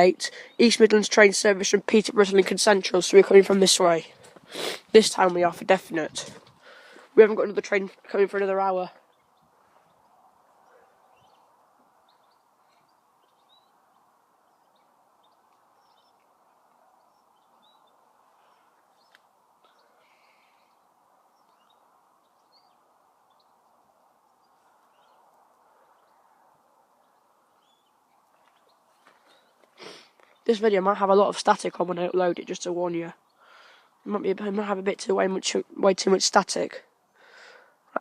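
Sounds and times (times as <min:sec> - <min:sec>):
faint outdoor hiss: 0:00.0 - 0:38.0
faint bird chirps: 0:08.9 - 0:30.5.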